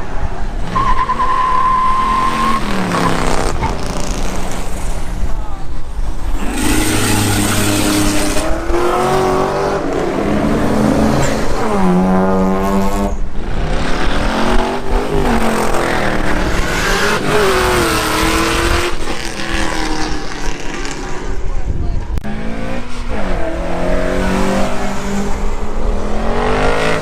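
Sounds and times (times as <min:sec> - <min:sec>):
car engine revving: 0:06.0 - 0:21.4, 0:22.2 - 0:27.0.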